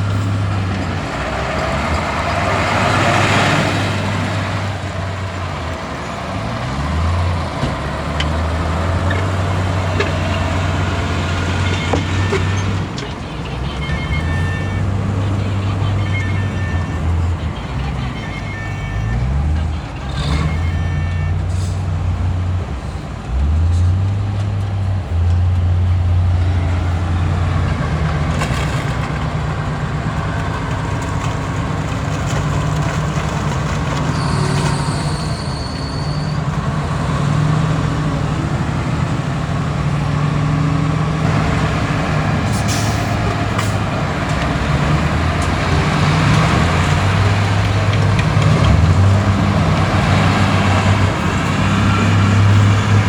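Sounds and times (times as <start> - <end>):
heavy diesel engines running: 0.0 - 53.0
clanking noises: 3.4 - 22.0, 22.6 - 37.5, 38.5 - 53.0
high-pitched squeal: 34.0 - 36.6.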